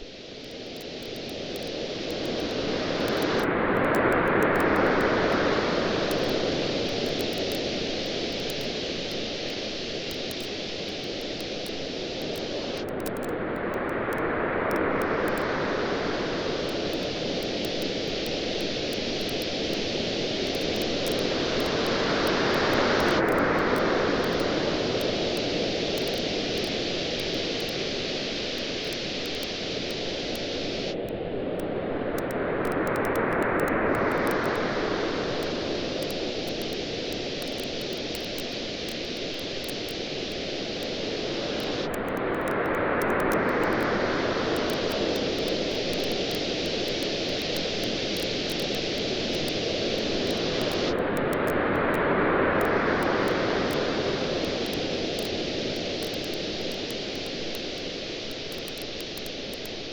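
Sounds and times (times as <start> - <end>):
ocean waves washing onto beach: 0.0 - 59.9
campfire crackling: 6.0 - 13.2, 16.2 - 31.0, 35.4 - 43.9, 44.6 - 51.0, 53.1 - 59.9.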